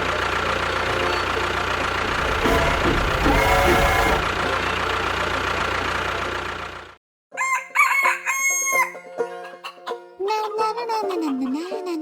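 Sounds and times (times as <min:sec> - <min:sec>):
engine running noise: 0:00.0 - 0:07.0
rooster crowing: 0:07.4 - 0:09.0.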